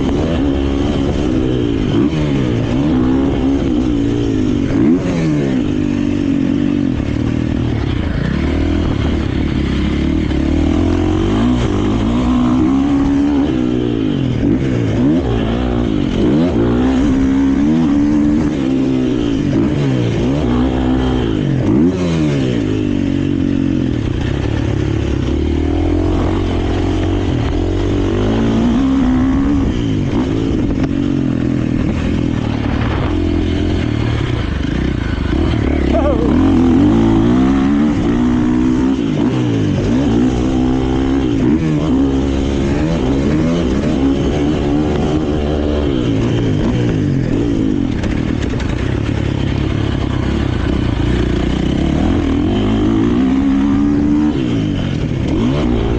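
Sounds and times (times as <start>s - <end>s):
motocross bike engine revving: 0.0s - 55.9s.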